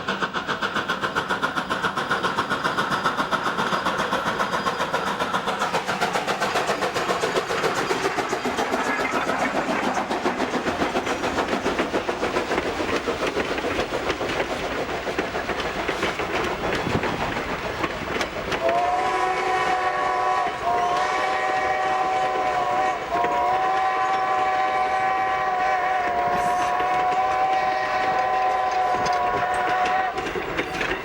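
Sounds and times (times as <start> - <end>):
steam locomotive chuffing: 0.0 - 31.0
steam whistle: 18.6 - 30.3.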